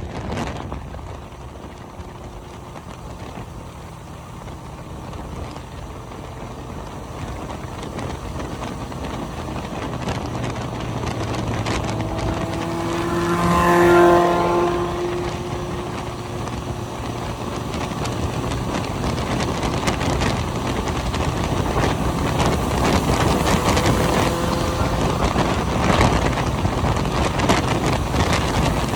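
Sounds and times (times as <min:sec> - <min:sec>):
road and wind noise: 0:00.0 - 0:28.9
vehicle engine passing by: 0:00.0 - 0:28.9.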